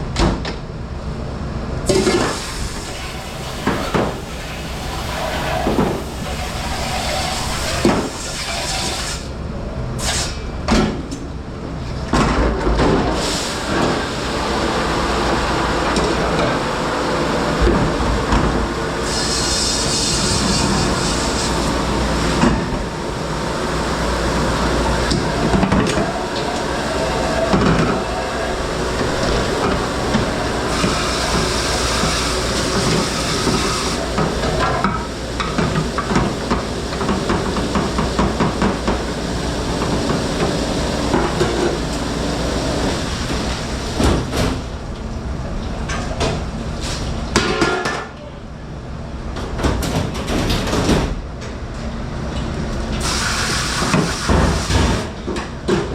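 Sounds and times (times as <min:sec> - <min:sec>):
dishwashing machine and spray noise: 0:01.8 - 0:55.9
dishes and racks clattering: 0:47.4 - 0:48.2.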